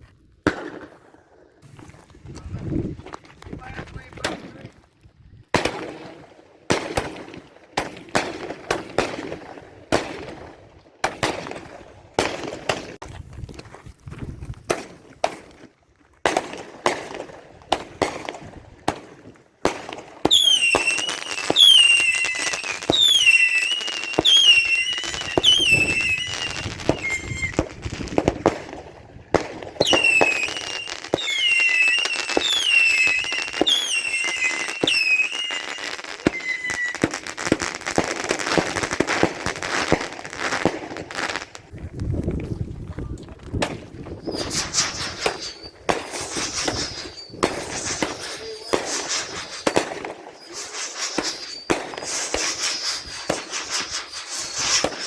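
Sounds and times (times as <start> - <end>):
fireworks bangs and crackles: 0.0 - 55.0
falling firework whistles: 20.2 - 28.7, 29.8 - 41.5, 44.1 - 55.0.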